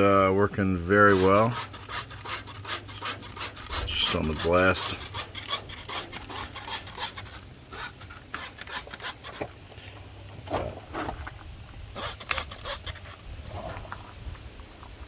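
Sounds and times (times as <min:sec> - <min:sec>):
trigger sprayer squirting: 0:01.1 - 0:09.6, 0:12.0 - 0:13.0.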